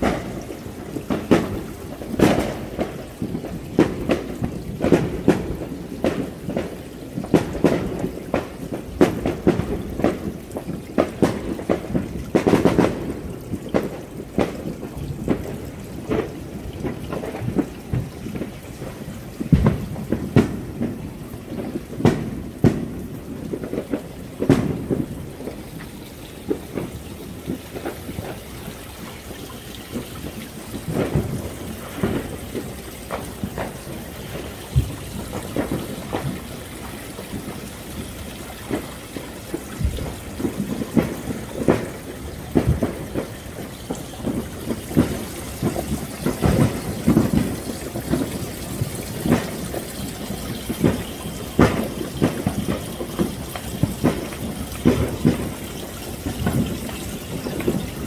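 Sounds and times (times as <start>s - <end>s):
fireworks bangs and booms: 0.0s - 58.0s.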